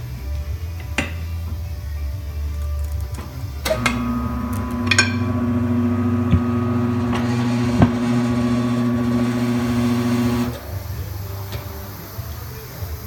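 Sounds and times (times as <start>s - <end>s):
machine motor humming: 3.6s - 10.7s.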